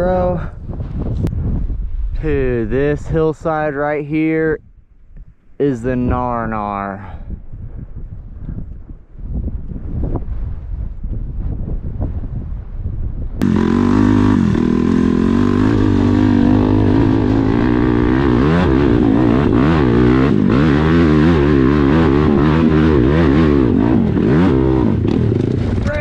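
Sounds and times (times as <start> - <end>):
wind buffeting microphone: 0.0 - 26.0
dirt bike engine revving: 13.4 - 26.0.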